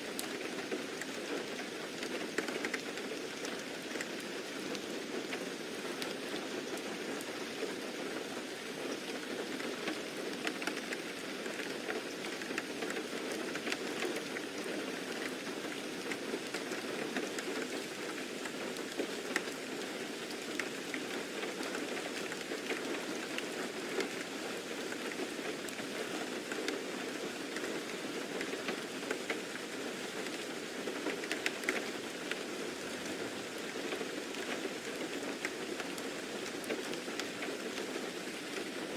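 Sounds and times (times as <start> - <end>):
steady rain: 0.0 - 38.9
raindrop ticks: 1.0 - 5.4, 9.0 - 24.2, 27.6 - 32.5, 33.1 - 38.8.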